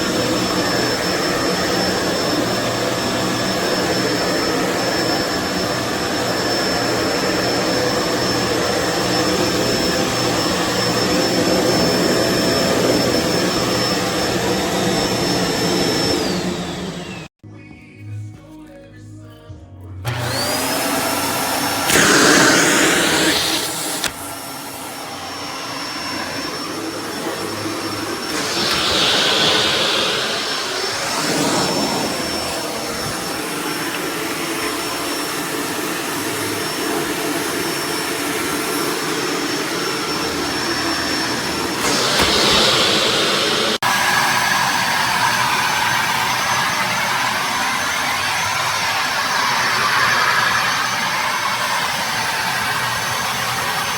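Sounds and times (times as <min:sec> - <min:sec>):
vacuum cleaner motor whine: 0:00.0 - 0:17.3, 0:20.1 - 0:53.9
vacuum air rush: 0:21.2 - 0:35.6, 0:37.9 - 0:51.7.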